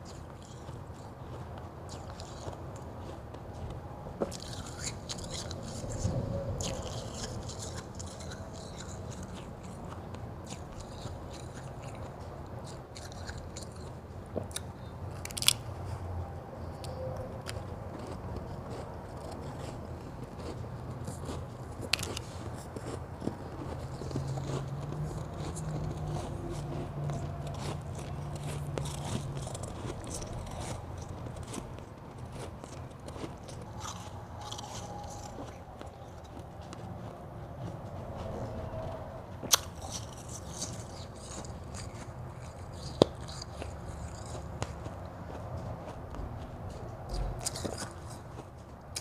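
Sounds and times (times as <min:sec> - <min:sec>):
chewing and crunching ice: 0:00.0 - 0:49.0
low hum: 0:15.0 - 0:43.0.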